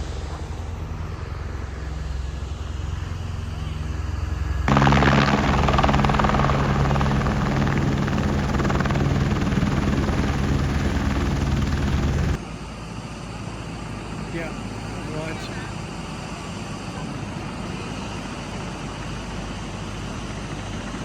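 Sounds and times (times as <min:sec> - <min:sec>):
helicopter running: 0:04.7 - 0:12.4.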